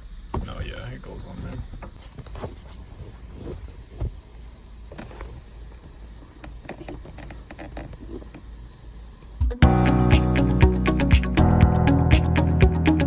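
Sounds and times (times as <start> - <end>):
music with a beat: 9.4 - 13.0.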